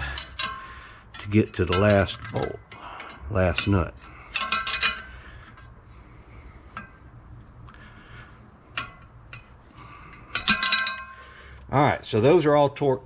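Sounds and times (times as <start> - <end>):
wrench clicking on nut: 0.0 - 3.7.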